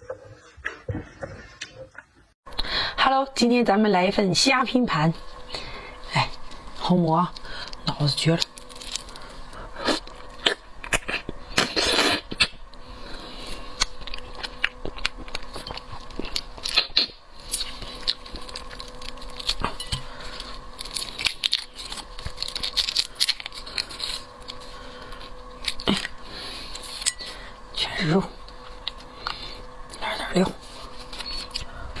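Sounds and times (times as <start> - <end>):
chewing: 5.3 - 27.4, 28.4 - 32.0
shrimp shells cracking: 8.4 - 9.3, 18.0 - 24.6
rustling crunch: 15.2 - 27.1.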